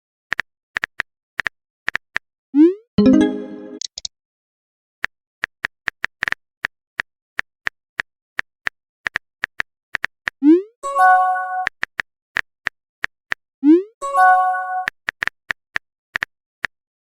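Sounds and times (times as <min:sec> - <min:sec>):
short message chime: 0:03.0 - 0:03.8.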